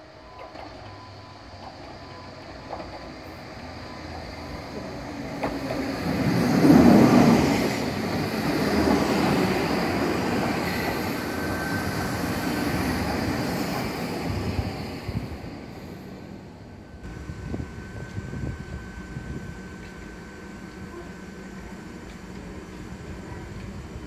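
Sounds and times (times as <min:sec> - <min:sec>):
electric train passing: 0:00.0 - 0:24.0
faint high squeal: 0:10.4 - 0:13.4.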